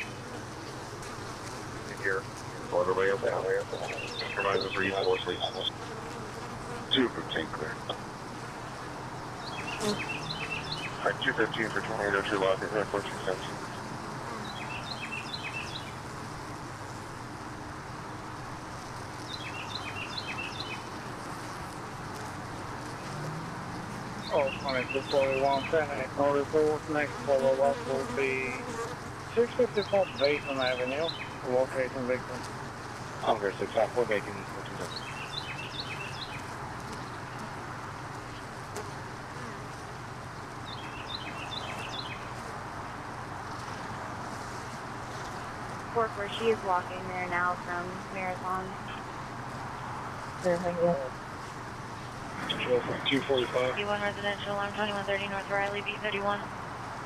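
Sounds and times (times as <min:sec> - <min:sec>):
steady outdoor hiss: 0:00.0 - 0:57.0
low hum: 0:06.9 - 0:09.0, 0:09.7 - 0:14.8.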